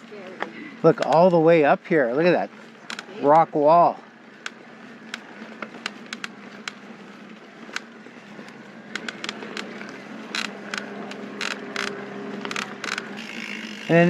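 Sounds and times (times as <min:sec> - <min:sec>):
bike and stones rattling: 0:00.0 - 0:14.0
bike tyres on rocky trail: 0:00.0 - 0:14.0.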